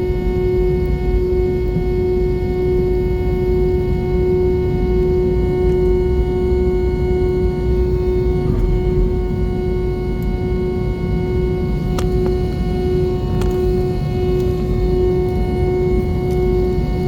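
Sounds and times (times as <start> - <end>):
constant pitched hum: 0.0 - 17.0
aircraft cabin low rumble: 0.1 - 17.0.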